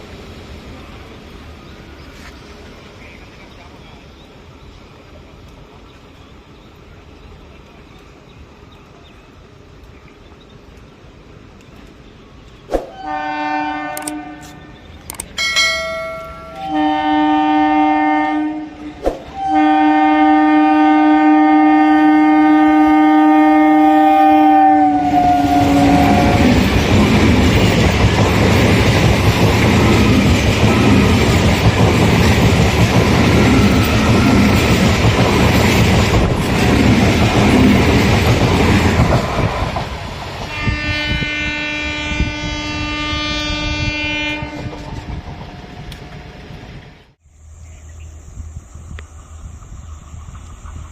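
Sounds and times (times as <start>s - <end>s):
train rumbling and wheel clatter: 0.0s - 50.9s
train horn blasts: 12.9s - 14.8s, 15.5s - 26.7s, 29.9s - 31.3s, 33.4s - 34.7s, 40.5s - 45.1s.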